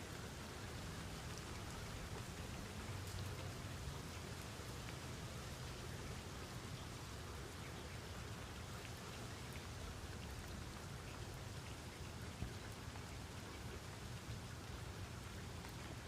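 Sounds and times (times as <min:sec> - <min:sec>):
steady rain falling: 0:00.0 - 0:16.0
rain drop ticks: 0:01.1 - 0:05.2.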